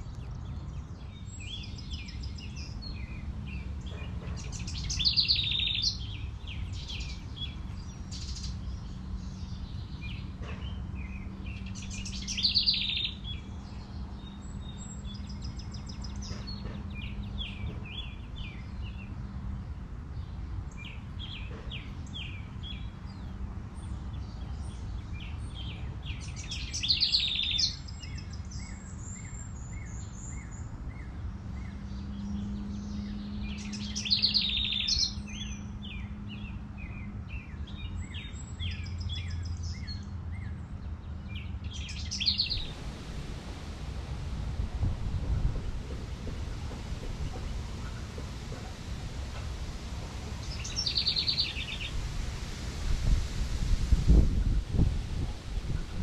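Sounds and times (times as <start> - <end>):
bird singing loud song phrase: 0.0 - 52.4
songbirds chirping: 0.0 - 56.0
low hum and rumble: 42.2 - 56.0.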